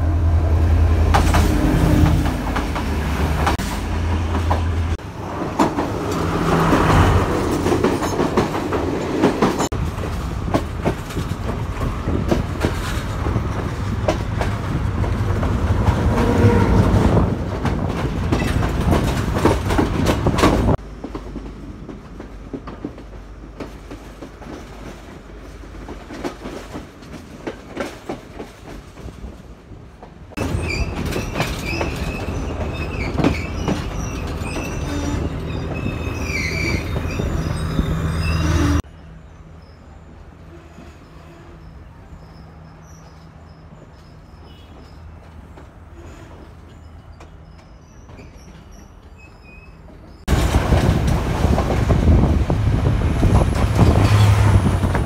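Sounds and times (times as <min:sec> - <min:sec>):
train rumbling past: 0:00.0 - 0:55.0
wheels clacking over rail joints: 0:01.0 - 0:38.9
wheels squealing on rails: 0:15.9 - 0:17.3, 0:30.4 - 0:50.3, 0:53.1 - 0:55.0.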